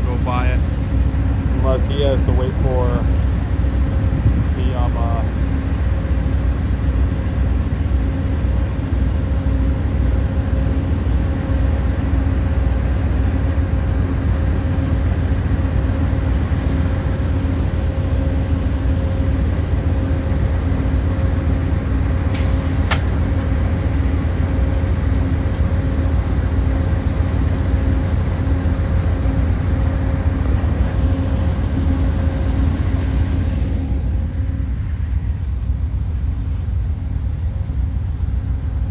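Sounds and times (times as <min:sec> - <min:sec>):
diesel locomotive engine rumble: 0:00.0 - 0:38.9.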